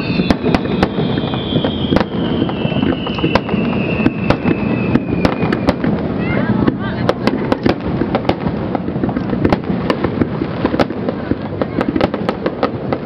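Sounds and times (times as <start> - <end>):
fireworks bursting with cracks and bangs: 0.0 - 13.0.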